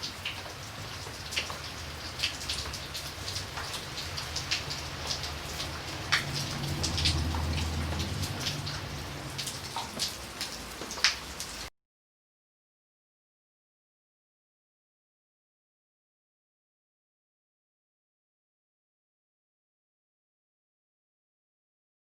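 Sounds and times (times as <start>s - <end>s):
rain drops ticking on hard surface: 0.0s - 11.7s.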